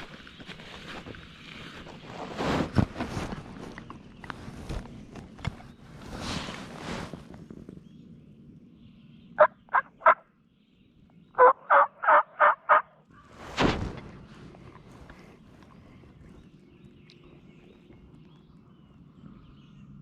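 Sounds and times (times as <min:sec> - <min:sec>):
turkey yelping: 0:09.4 - 0:10.2, 0:11.4 - 0:13.0.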